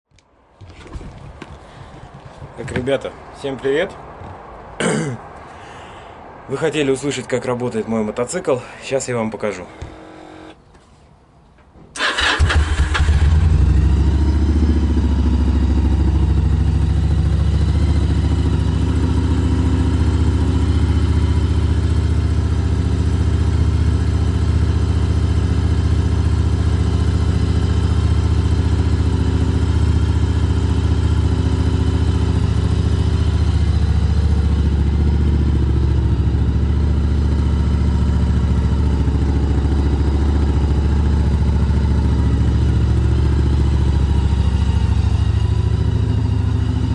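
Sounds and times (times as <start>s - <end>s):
motorcycle engine idling: 12.0s - 46.9s.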